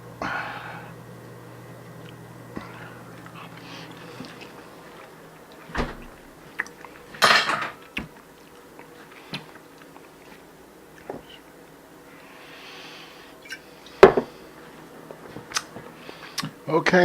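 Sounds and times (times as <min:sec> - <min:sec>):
dishes and utensils clinking: 0:07.1 - 0:07.9.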